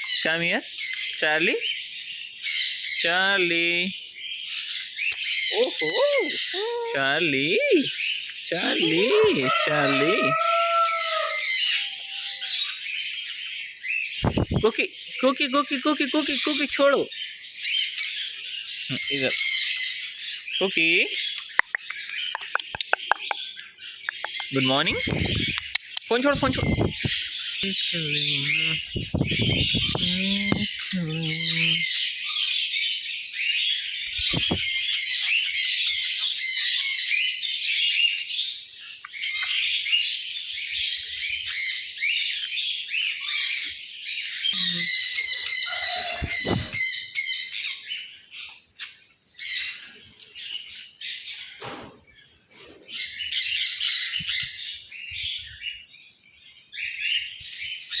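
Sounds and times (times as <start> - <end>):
pet birds chirping and squawking: 0.0 - 58.0.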